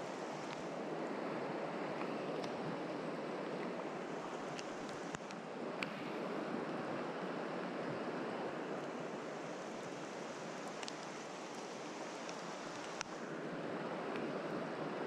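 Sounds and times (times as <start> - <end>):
stream water rushing: 0.0 - 15.0
faint clicks: 4.5 - 6.0, 10.6 - 13.2.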